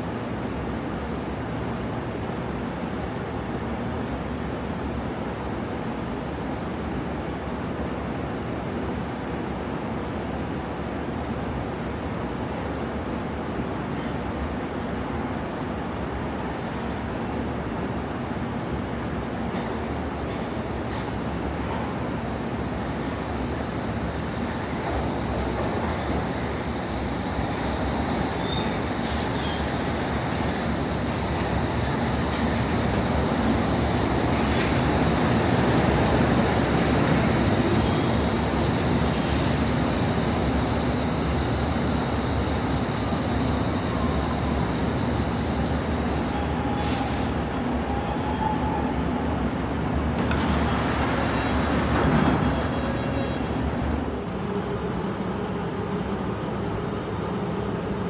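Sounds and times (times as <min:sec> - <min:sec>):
underground train rumbling: 0:11.1 - 0:58.0
high wheel squeals: 0:28.0 - 0:49.0.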